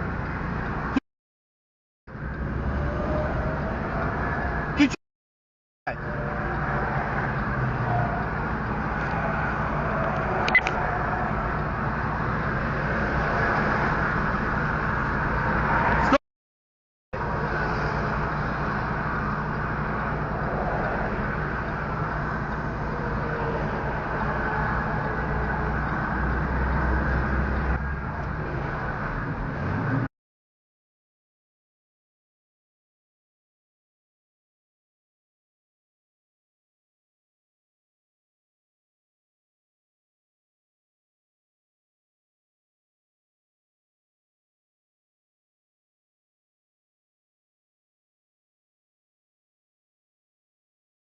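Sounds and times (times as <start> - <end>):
vehicle engine and road noise: 0.0 - 1.0, 2.1 - 5.0, 5.9 - 16.2, 17.2 - 30.1.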